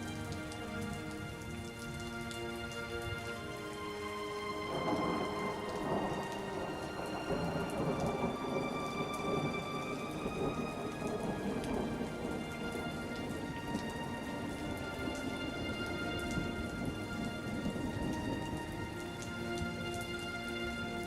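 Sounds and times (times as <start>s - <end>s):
steady rain: 0.0s - 21.0s
rolling thunder rumble: 4.6s - 19.0s.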